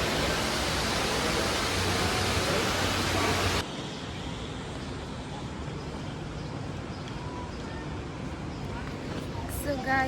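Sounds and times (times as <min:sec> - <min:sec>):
steady rushing noise: 0:00.0 - 0:06.9.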